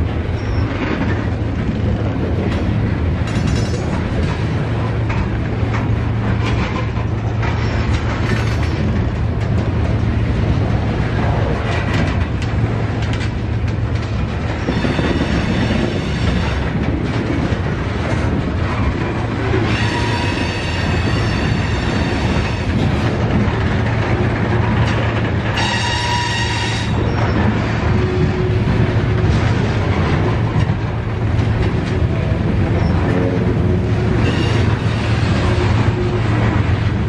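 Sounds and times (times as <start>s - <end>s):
train railcars rumbling past: 0.0s - 37.0s
high-pitched wheel squeal: 19.7s - 22.6s.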